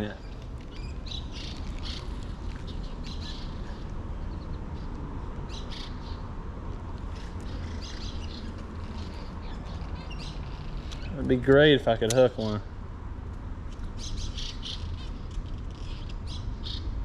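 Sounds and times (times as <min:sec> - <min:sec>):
birds chirping: 0:00.0 - 0:06.4, 0:07.0 - 0:12.5, 0:13.9 - 0:16.9
steady low rumble: 0:00.0 - 0:17.0.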